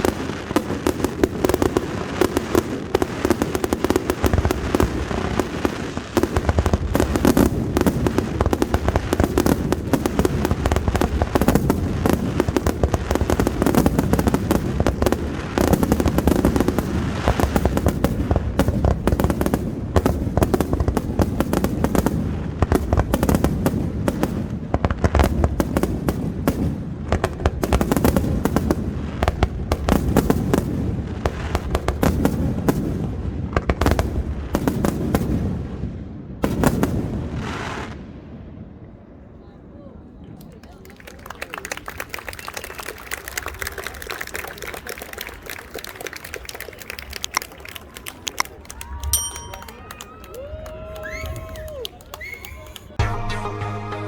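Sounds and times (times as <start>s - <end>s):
fireworks bursting: 0.0s - 39.0s.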